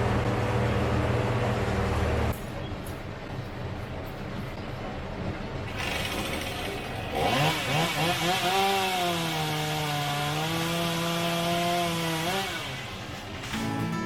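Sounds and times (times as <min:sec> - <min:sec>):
chainsaw revving and cutting wood: 0:05.7 - 0:13.8.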